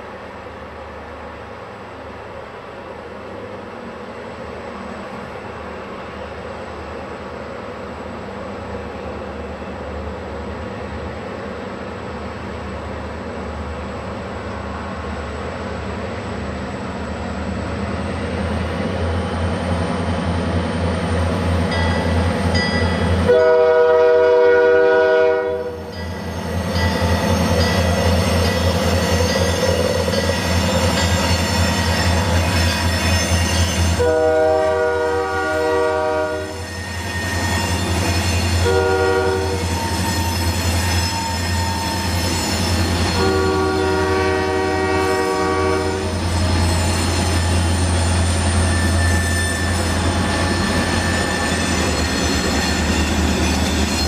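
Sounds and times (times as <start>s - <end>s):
locomotive air horn blasts: 23.2s - 25.8s, 34.0s - 36.7s, 38.6s - 39.7s, 43.2s - 46.2s.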